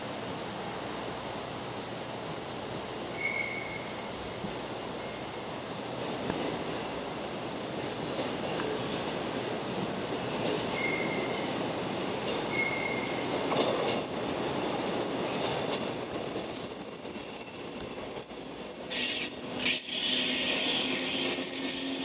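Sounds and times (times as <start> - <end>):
train wheels rumbling and clattering: 2.3 - 22.0
high wheel squeals: 12.5 - 13.2, 17.0 - 22.0
high-pitched screech and hiss: 17.0 - 22.0.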